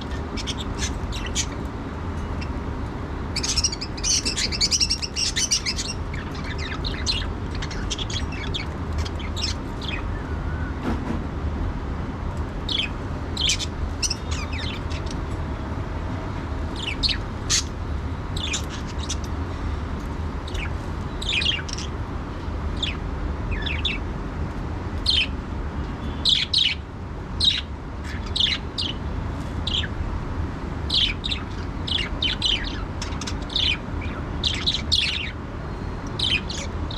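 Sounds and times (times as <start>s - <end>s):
budgerigars chirping: 0.0s - 1.6s, 3.3s - 10.2s, 12.7s - 15.2s, 16.7s - 19.3s, 20.5s - 22.0s, 22.8s - 24.0s, 25.0s - 25.3s, 26.2s - 26.8s, 27.4s - 29.0s, 29.6s - 30.0s, 30.9s - 35.4s, 36.1s - 36.9s.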